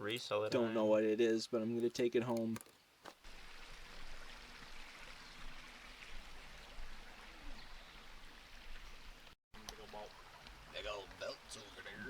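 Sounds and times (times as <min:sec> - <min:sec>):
creek water flowing: 0:02.9 - 0:12.0.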